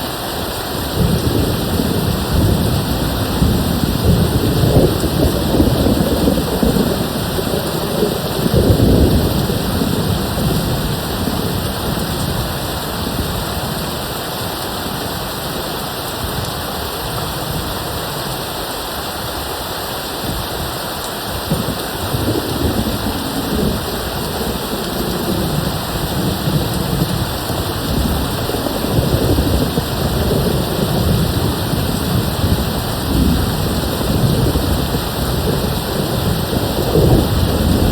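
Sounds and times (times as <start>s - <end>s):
heavy rain: 0.0s - 37.9s
distant thunder rumbling: 0.8s - 14.2s, 21.4s - 37.9s.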